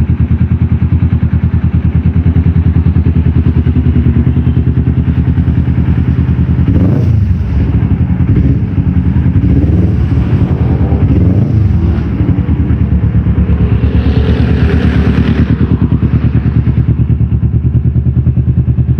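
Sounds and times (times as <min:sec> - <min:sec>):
motorcycle exhaust idling: 0:00.0 - 0:18.9.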